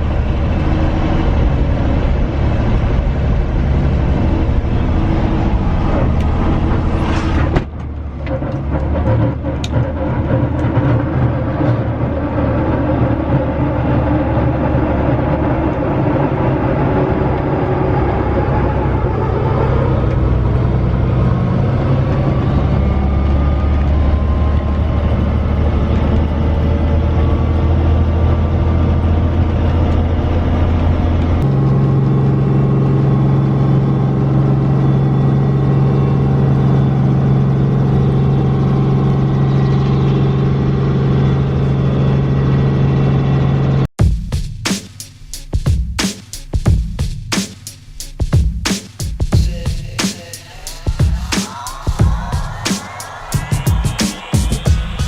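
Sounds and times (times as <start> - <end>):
helicopter engine and rotor drone: 7.7 - 43.8.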